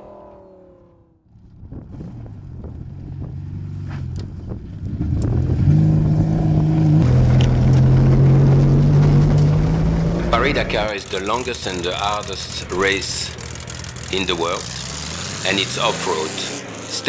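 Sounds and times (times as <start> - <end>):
car engine running: 0.0 - 17.0
scattered clicks: 10.8 - 14.6.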